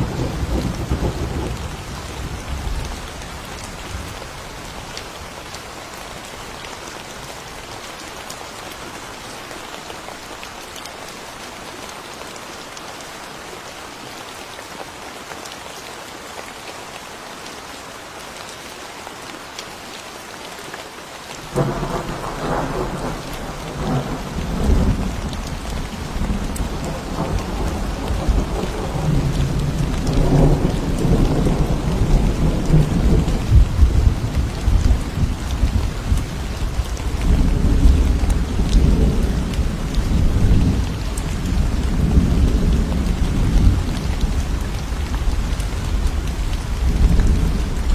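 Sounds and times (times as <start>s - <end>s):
thunder rumbling: 0.0s - 2.9s, 21.4s - 47.9s
rain falling: 0.0s - 47.9s.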